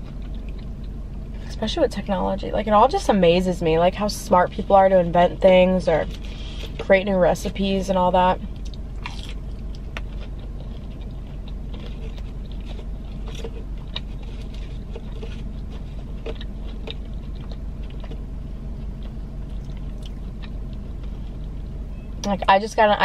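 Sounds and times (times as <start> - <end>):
chewing fried cheese stick: 0.0 - 1.0, 8.5 - 21.6
steady low hum: 0.0 - 23.0.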